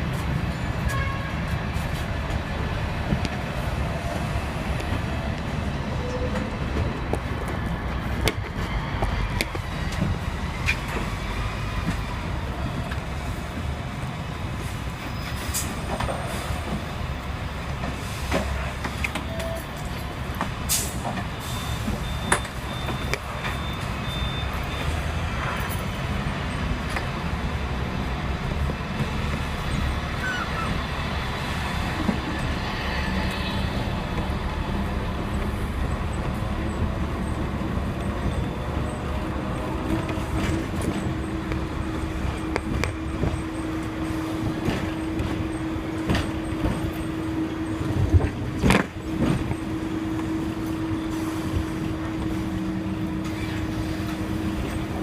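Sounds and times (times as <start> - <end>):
electric tram rumbling: 0.0 - 55.0.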